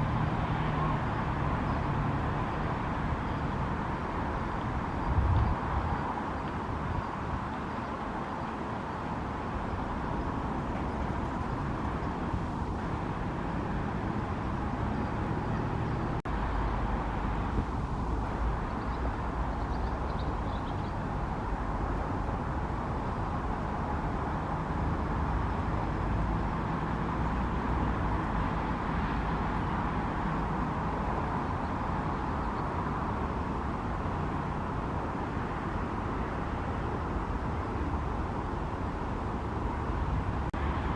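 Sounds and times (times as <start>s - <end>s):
distant road traffic hum: 0.0s - 40.9s.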